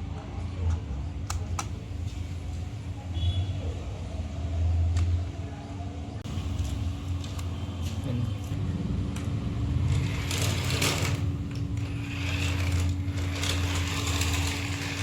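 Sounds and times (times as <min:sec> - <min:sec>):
gears scraping: 0:09.8 - 0:15.0
toy car motor whirring: 0:09.8 - 0:15.0.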